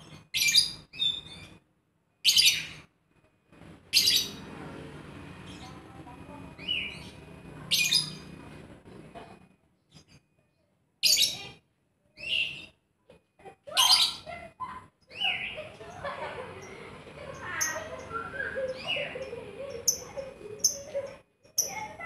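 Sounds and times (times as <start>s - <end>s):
bird chattering song: 0.0s - 1.6s, 2.3s - 2.9s, 3.9s - 4.4s, 5.3s - 8.4s, 11.0s - 11.6s, 12.2s - 12.8s, 15.0s - 22.0s
bird chirping: 0.0s - 1.6s, 3.6s - 11.6s, 12.2s - 12.8s, 15.0s - 22.0s.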